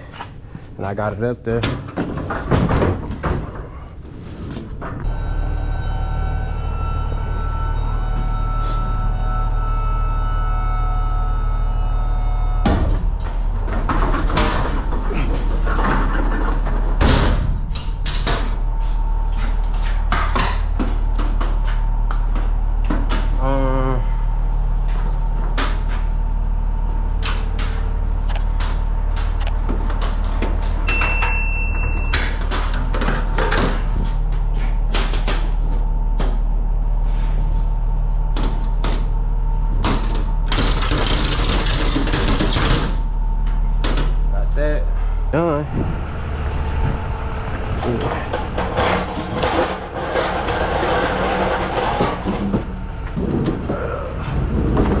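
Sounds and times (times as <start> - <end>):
steady low hum: 0.0 - 40.9, 42.0 - 55.0
sharp knocks and clanks: 48.1 - 53.7.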